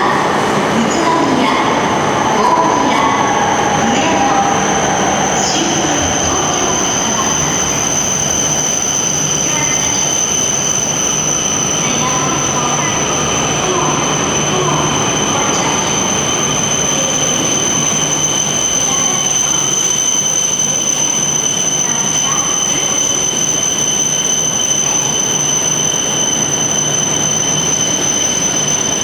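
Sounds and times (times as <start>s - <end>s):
constant train rumble: 0.0s - 29.0s
high-pitched train whine: 0.0s - 29.0s.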